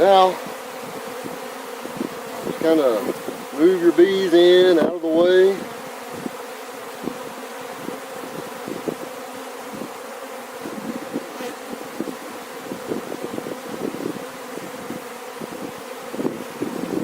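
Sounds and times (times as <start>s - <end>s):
bees buzzing: 0.0s - 17.0s
bees flying close past: 0.0s - 17.0s.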